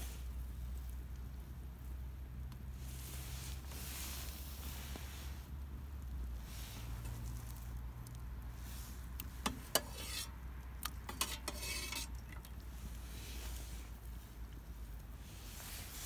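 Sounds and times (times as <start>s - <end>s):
utensil clinking against cookware: 9.5s - 12.5s.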